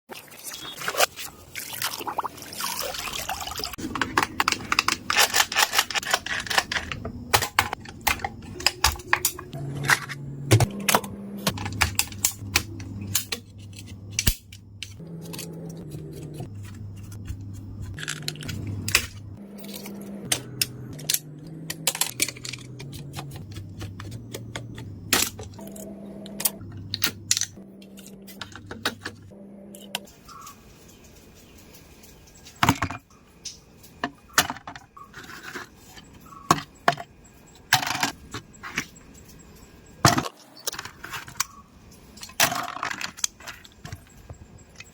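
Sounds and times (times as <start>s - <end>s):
plastic toy parts clicking: 3.8s - 9.4s.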